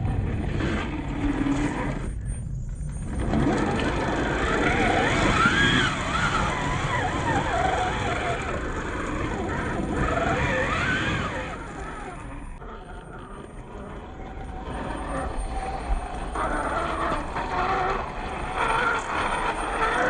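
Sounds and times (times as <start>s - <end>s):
toy car motor whining: 0.6s - 20.0s.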